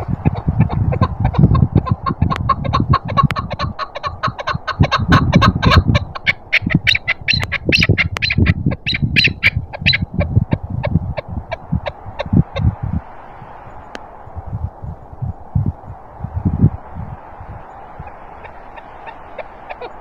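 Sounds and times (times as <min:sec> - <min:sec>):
partridge clucking calls: 0:00.0 - 0:12.7, 0:18.0 - 0:20.0
wind rumble on microphone: 0:00.0 - 0:20.0.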